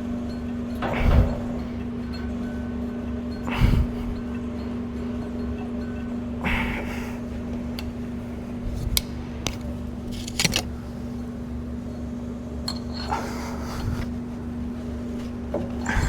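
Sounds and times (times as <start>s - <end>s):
steady machine hum: 0.0s - 16.0s
metallic clicks of steel tooling: 8.9s - 10.8s.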